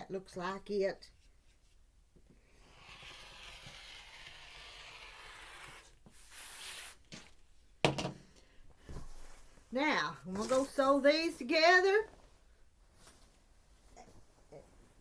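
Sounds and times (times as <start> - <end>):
fabric being cut: 2.6 - 7.4.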